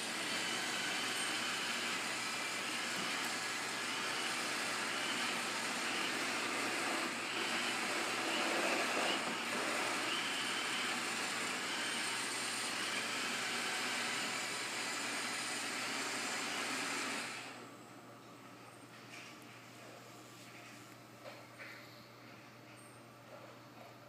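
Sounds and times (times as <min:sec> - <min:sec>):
robot vacuum whirring: 0:00.0 - 0:17.6.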